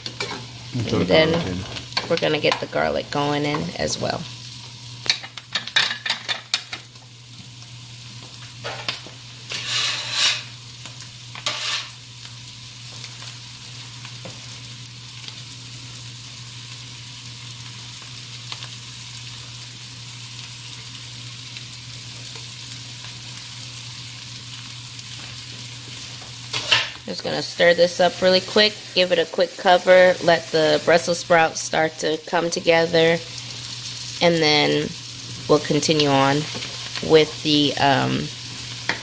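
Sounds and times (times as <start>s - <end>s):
food sizzling in a skillet: 0.0s - 39.0s
spatula scraping: 9.5s - 10.5s, 11.4s - 11.9s.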